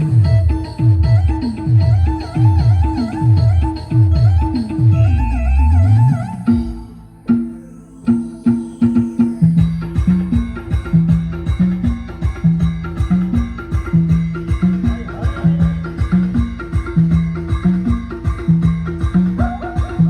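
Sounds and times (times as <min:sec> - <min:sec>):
low bass riff: 0:00.0 - 0:20.0
fast drum beat: 0:09.4 - 0:20.0.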